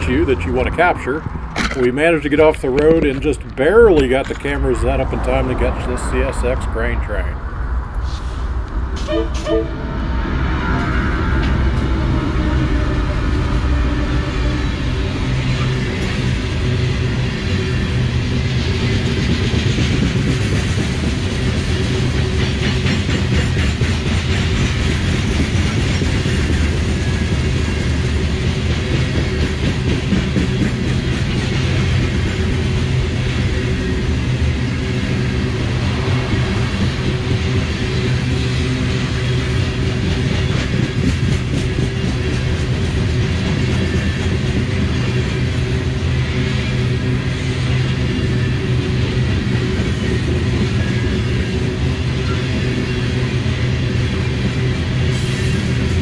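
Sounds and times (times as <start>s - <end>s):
diesel locomotives passing: 0.0s - 56.0s
train wheels clacking over rail joints: 1.1s - 5.2s, 15.5s - 56.0s.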